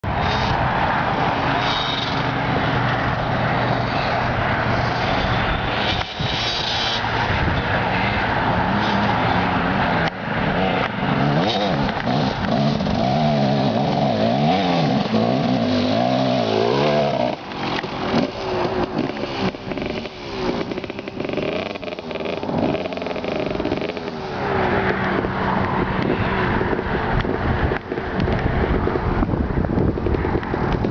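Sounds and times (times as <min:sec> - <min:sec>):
dirt bike engine revving: 0:10.5 - 0:24.7.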